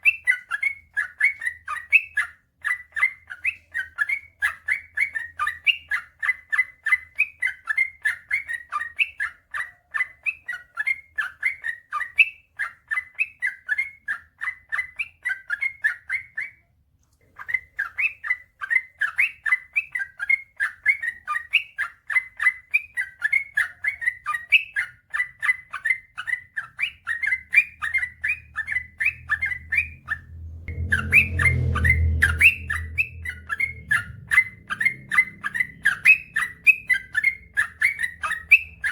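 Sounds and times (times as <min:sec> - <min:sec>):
low rumble: 0:29.1 - 0:37.8.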